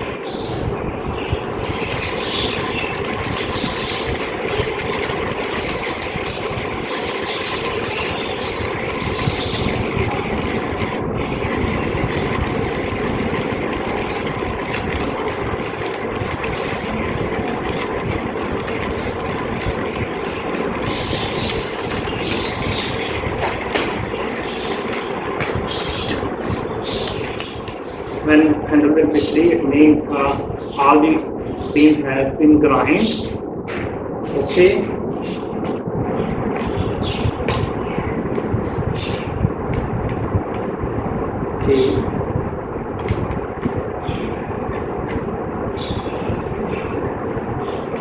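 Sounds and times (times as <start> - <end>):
manual coffee grinder grinding: 1.6 - 26.2.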